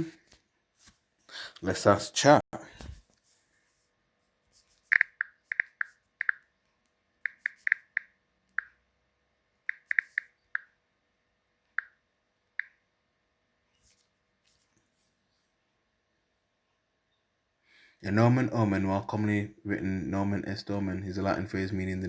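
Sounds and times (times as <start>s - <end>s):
keyboard key clicks: 4.9s - 6.4s, 7.2s - 8.7s, 9.7s - 10.7s.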